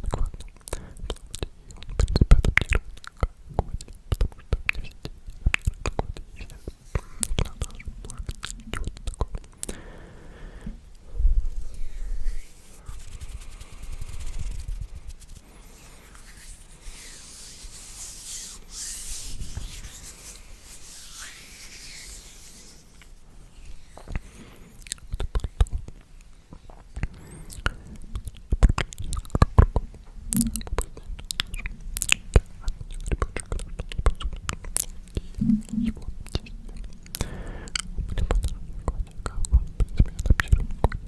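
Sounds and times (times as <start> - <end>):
wet mouth clicks: 0.0 - 9.8, 24.0 - 41.0
breathy whispering: 6.2 - 25.4, 30.4 - 40.9.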